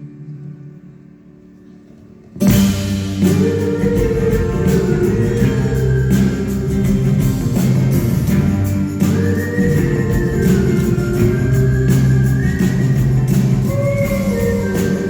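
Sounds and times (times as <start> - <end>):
live band playing loudly: 2.4 - 15.0.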